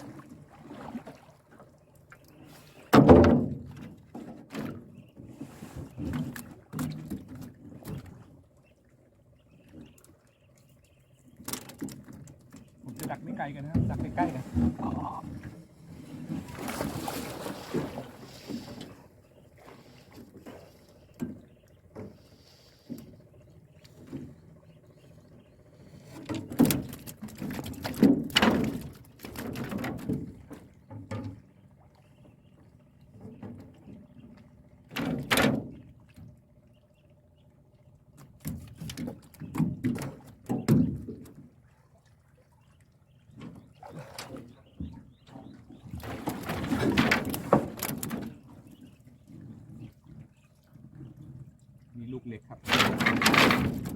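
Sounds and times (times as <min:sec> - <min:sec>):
water splashing and pouring: 0:00.0 - 0:01.6, 0:16.2 - 0:18.8
water splashing around a boat: 0:00.0 - 0:53.9
dull thunks: 0:02.9 - 0:04.9.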